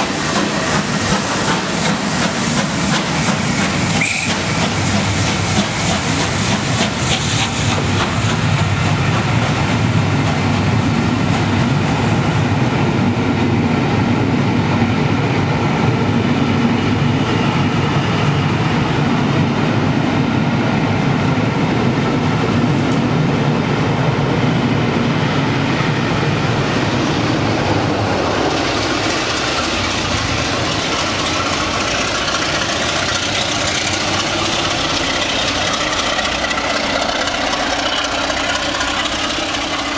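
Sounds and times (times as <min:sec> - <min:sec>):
train engine drone: 0:00.0 - 0:39.9
train wheels clattering on rails: 0:00.0 - 0:39.9.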